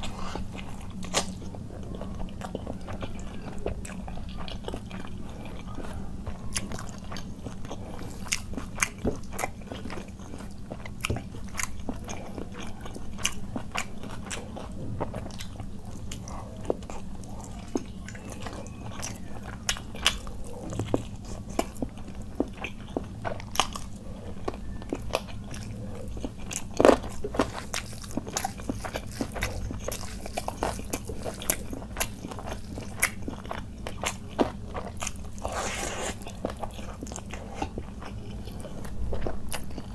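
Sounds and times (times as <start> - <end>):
food crunching: 0.0 - 39.9
person chewing food: 0.0 - 39.9.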